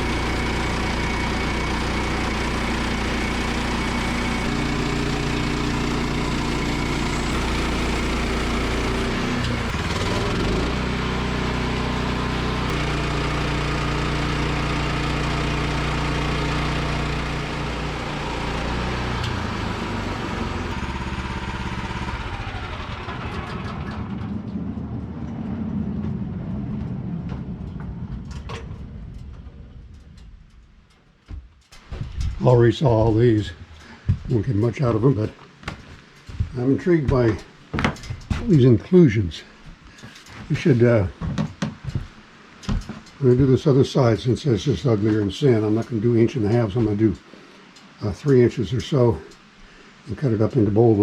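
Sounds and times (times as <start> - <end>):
sawmill gas engine running: 0.0 - 26.0.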